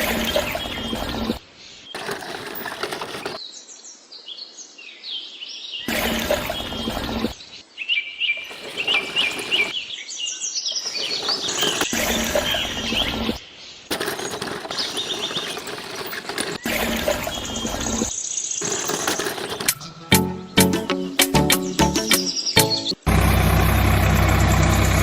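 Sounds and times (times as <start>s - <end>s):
rough full noise: 2.0s - 3.4s, 5.9s - 7.4s, 8.4s - 9.8s, 10.7s - 20.3s
birds chirping: 5.8s - 23.0s.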